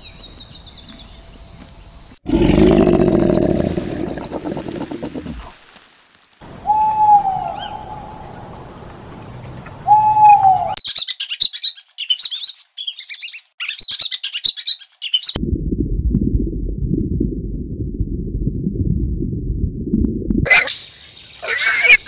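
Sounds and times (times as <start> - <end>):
owl hooting: 6.6 - 8.4, 9.8 - 10.8.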